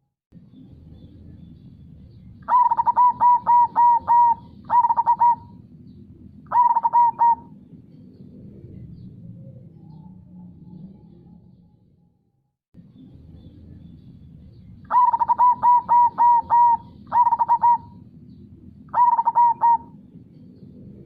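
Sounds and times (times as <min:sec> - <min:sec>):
dove cooing: 0:02.5 - 0:05.7, 0:06.5 - 0:07.7, 0:14.9 - 0:18.1, 0:18.9 - 0:20.4.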